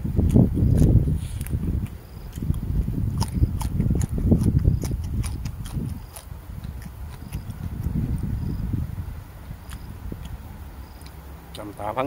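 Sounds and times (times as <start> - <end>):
low rumble of chewing: 0.0 - 12.0
wet mouth smacks and clicks: 0.2 - 8.0, 9.6 - 10.4, 11.0 - 11.2.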